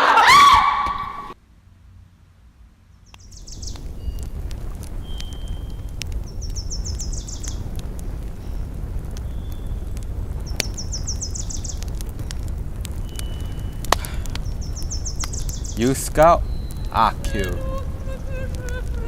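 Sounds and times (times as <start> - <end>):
low outdoor rumble: 1.3 - 19.0
thin bird whistles: 3.1 - 4.3, 5.0 - 7.6, 8.4 - 9.8, 10.4 - 19.0.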